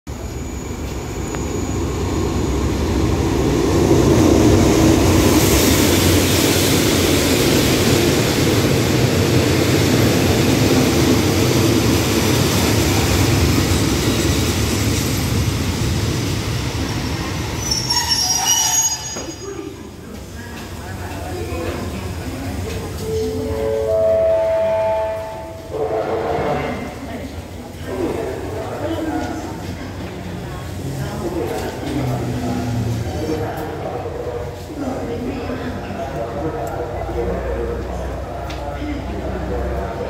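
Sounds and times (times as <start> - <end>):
train brakes squealing: 0.1 - 2.6, 16.9 - 19.7
train wheels rumbling on rails: 0.1 - 23.3.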